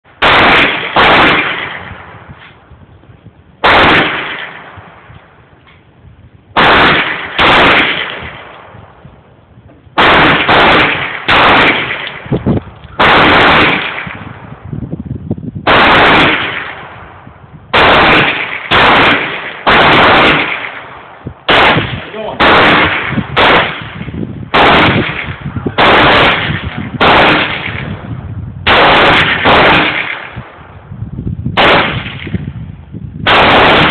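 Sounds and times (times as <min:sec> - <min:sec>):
pistol shots echoing: 0:00.2 - 0:02.1, 0:03.6 - 0:04.8, 0:06.6 - 0:08.8, 0:10.0 - 0:12.3, 0:13.0 - 0:14.3, 0:15.7 - 0:17.1, 0:17.8 - 0:28.0, 0:28.7 - 0:30.4, 0:31.6 - 0:32.4, 0:33.3 - 0:33.9.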